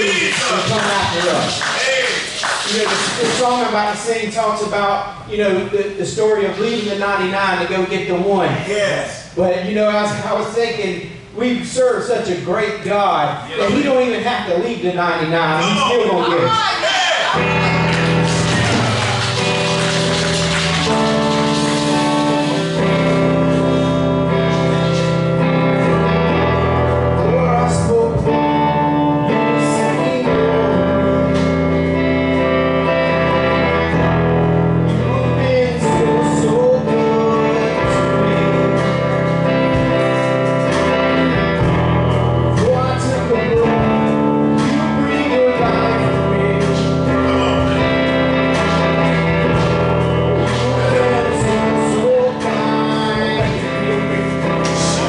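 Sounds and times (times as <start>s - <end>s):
live gospel song: 0.0s - 5.0s, 13.6s - 55.0s
instrumental accompaniment: 17.3s - 55.0s
person singing: 27.2s - 31.4s, 34.9s - 39.2s, 42.6s - 55.0s.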